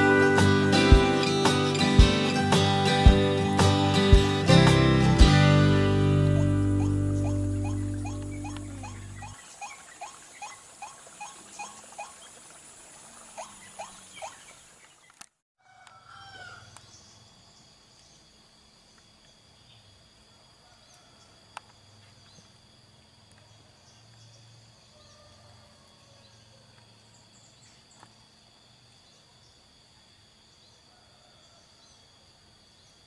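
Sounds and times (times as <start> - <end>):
faint insect drone: 0.0 - 33.0
bird calling short upward notes: 6.3 - 12.2.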